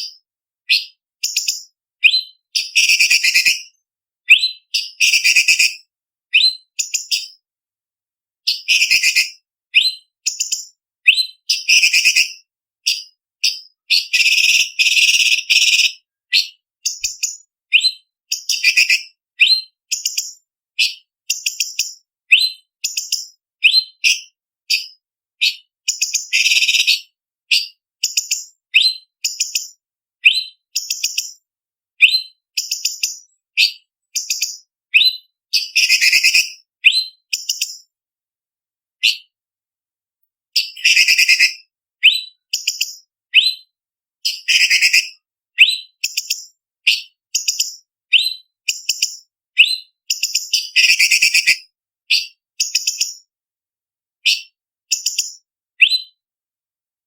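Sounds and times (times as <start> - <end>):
bird whistled chirps: 0.0 - 7.4, 8.5 - 31.3, 32.0 - 37.8, 39.0 - 39.3, 40.6 - 53.1, 54.2 - 56.2.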